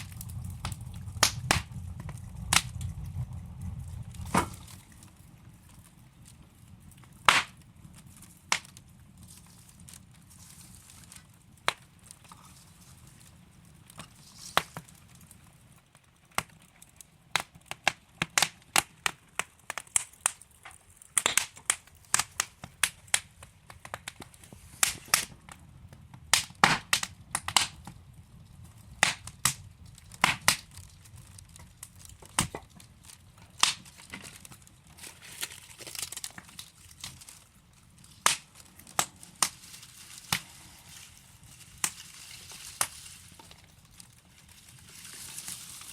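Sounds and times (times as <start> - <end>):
logs popping and crackling: 0.0 - 45.9
low rumble of flame: 0.0 - 45.9.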